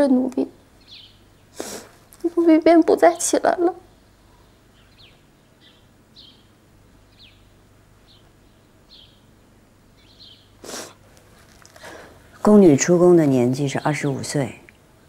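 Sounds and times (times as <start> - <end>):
small birds chirping: 0.0 - 14.9
soft rustle: 10.6 - 12.6.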